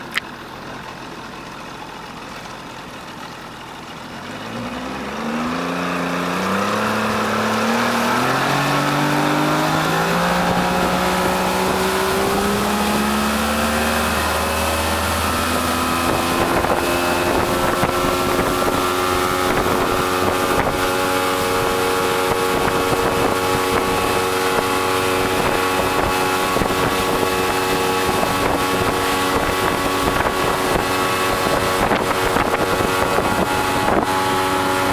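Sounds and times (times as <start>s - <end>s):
motorboat engine accelerating: 0.0s - 34.9s
wind buffeting microphone: 7.7s - 34.9s.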